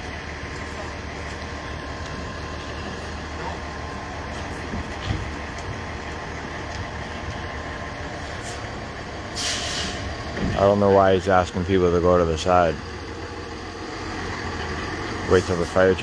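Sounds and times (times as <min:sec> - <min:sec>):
large diesel engine idling: 0:00.0 - 0:16.0.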